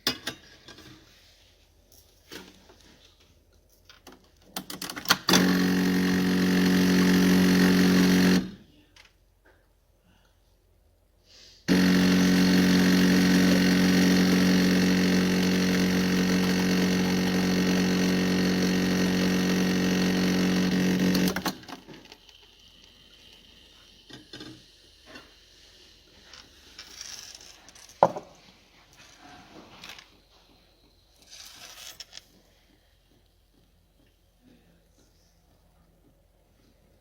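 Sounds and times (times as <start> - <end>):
espresso machine pump buzzing: 5.1 - 8.6, 11.7 - 26.1.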